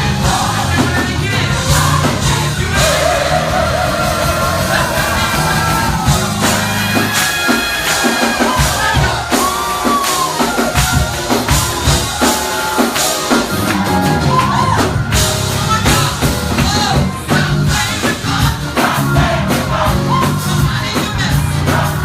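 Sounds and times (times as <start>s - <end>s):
band with drum kit: 0.0s - 22.0s
choir singing gospel: 0.0s - 22.0s
drums hitting steady beat: 0.0s - 22.0s.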